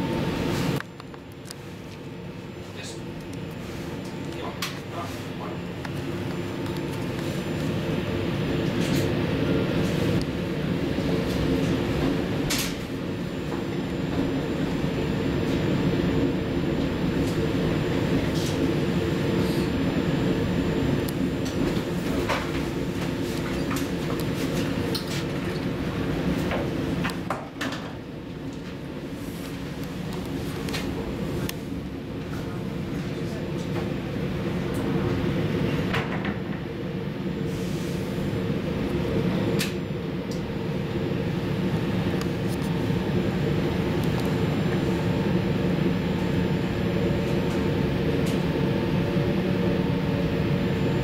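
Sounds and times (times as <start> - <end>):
train carriage rumble and hum: 0.0 - 51.0.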